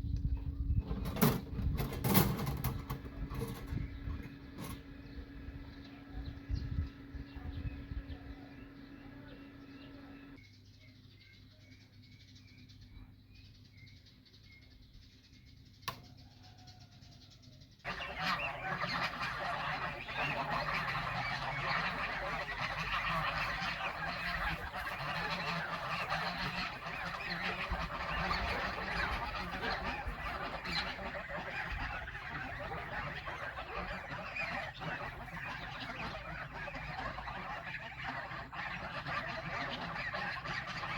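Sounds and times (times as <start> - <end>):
poultry flock calling: 0.7 - 10.4, 17.8 - 40.9.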